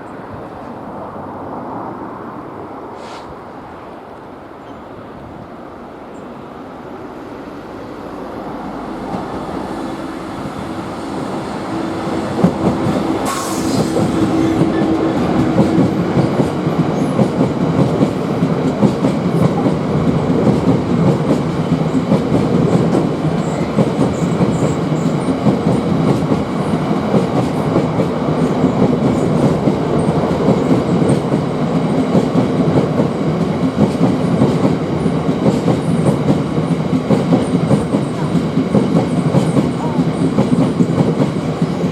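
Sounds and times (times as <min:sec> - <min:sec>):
train passing: 0:00.0 - 0:41.9.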